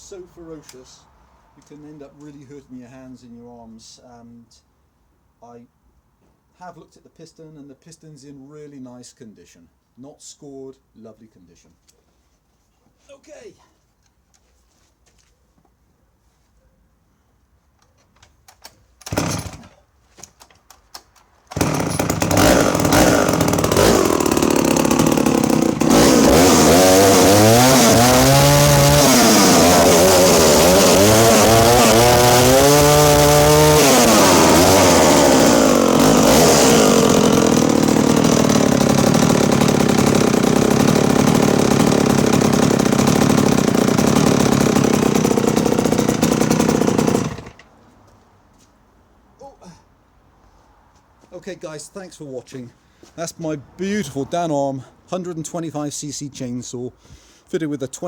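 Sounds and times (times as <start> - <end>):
chainsaw starter knocks: 17.9 - 47.7
chainsaw engine revving: 19.0 - 19.8, 21.5 - 47.6.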